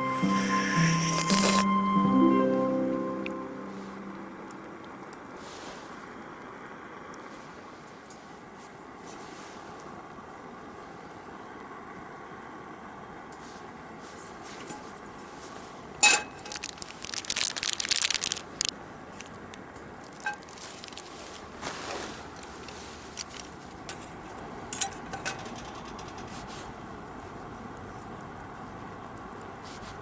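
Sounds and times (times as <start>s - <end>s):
crackling and rustling: 0.7s - 1.7s, 13.3s - 30.0s.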